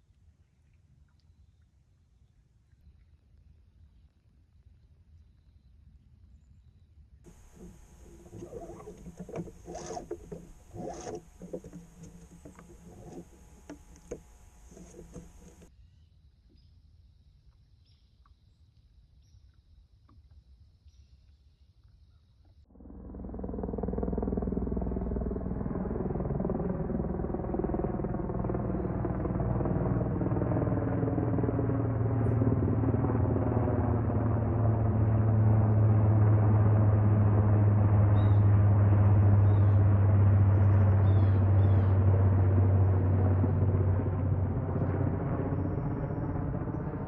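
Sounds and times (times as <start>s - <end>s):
helicopters flying low: 7.3s - 15.7s, 22.7s - 47.0s.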